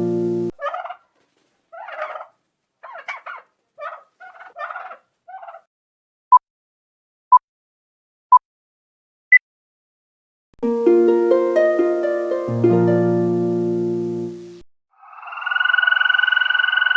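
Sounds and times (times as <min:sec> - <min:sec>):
turkey gobbling: 0:00.5 - 0:05.7.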